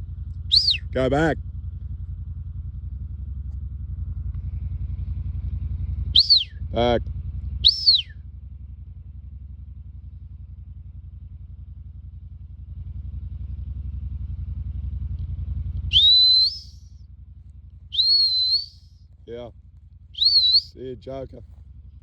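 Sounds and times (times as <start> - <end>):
whistle command to dog: 0.5 - 1.1, 6.2 - 6.6, 7.6 - 8.1, 15.9 - 16.8, 18.0 - 18.8, 20.2 - 20.8.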